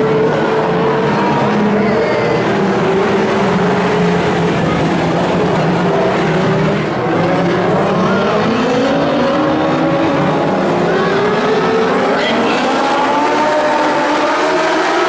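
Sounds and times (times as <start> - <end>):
race car engines accelerating: 0.0 - 15.0.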